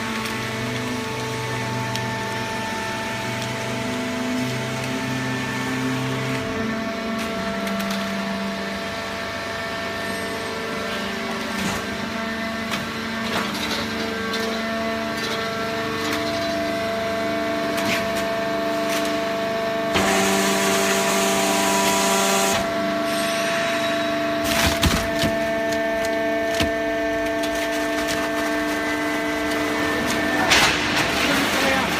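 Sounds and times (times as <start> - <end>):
baler machine hum and whine: 0.0 - 31.9
cracks and knocks of pressed material: 24.4 - 28.8.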